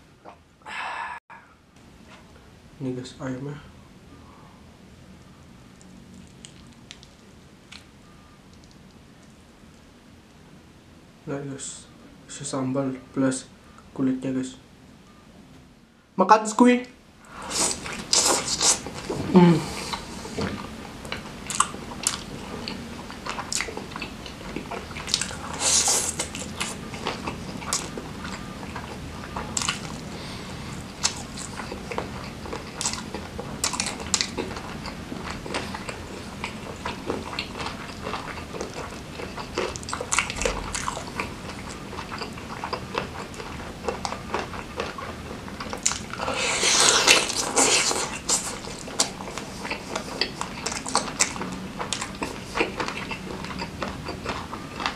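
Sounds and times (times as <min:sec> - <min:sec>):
wet chewing and smacking: 0:05.7 - 0:07.9, 0:17.3 - 0:54.9
loud biting: 0:45.7 - 0:51.4.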